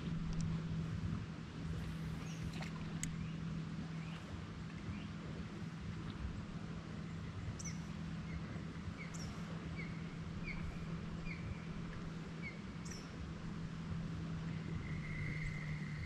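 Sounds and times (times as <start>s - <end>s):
steady low hum: 0.0s - 16.0s
birds chirping: 7.1s - 13.2s.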